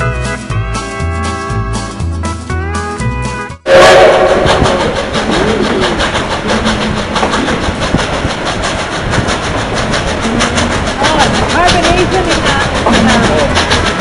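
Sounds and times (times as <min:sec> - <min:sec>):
steam train clattering: 0:03.7 - 0:14.0.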